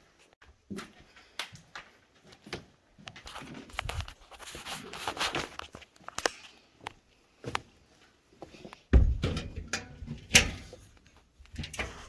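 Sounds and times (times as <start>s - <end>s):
footsteps crunching over debris: 0.1s - 6.5s
rustling: 3.2s - 6.6s.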